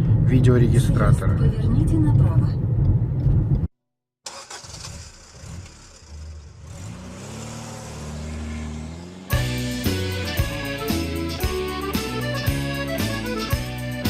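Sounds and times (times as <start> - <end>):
low road noise: 4.3 - 14.0
car engine from inside cabin: 5.2 - 9.8.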